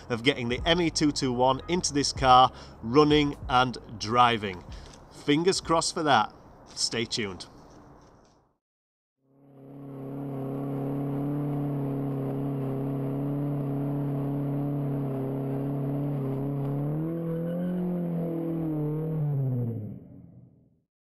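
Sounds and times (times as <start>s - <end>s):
car engine at high revs: 9.3s - 20.3s.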